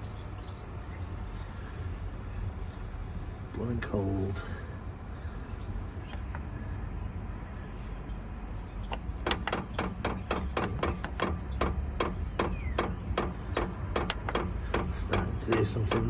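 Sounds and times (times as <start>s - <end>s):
heater blower fan humming: 9.0s - 16.0s
fuel pump ticking rapidly: 9.2s - 16.0s.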